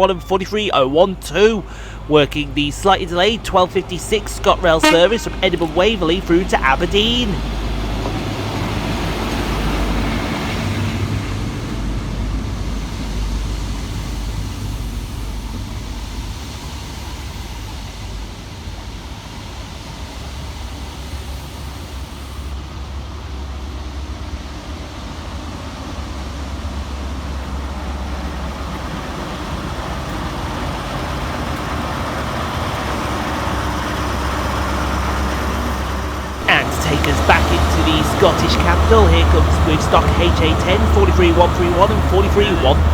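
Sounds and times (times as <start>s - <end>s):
train diesel engines humming: 0.0s - 42.9s.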